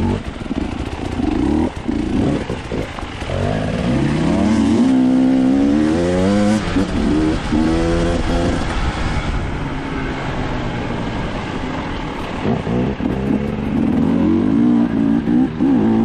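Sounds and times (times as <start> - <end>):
dirt bike engine revving: 0.0 - 9.2, 12.2 - 16.0.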